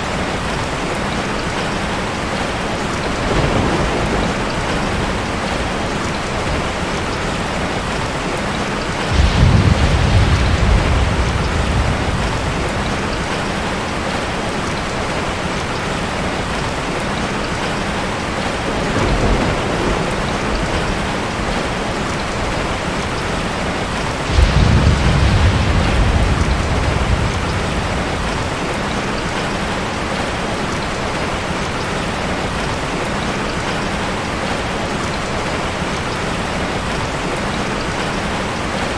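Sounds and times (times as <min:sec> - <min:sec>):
ocean waves breaking: 0:08.9 - 0:15.2, 0:18.5 - 0:29.9.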